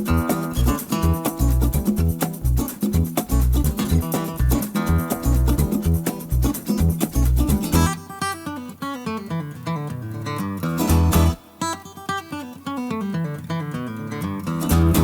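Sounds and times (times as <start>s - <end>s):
bass: 0.0s - 7.9s, 10.8s - 11.4s, 14.6s - 15.0s
plucked guitar melody: 0.0s - 15.0s.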